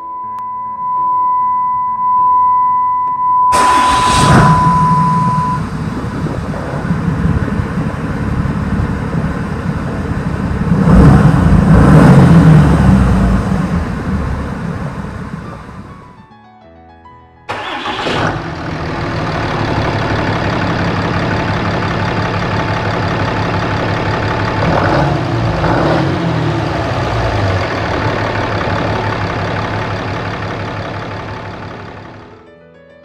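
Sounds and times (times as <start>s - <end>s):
steady high beep: 0.0s - 5.7s
vehicle engine running loudly: 3.6s - 16.0s, 18.0s - 32.3s
keyboard notes: 15.3s - 18.3s, 32.0s - 33.0s.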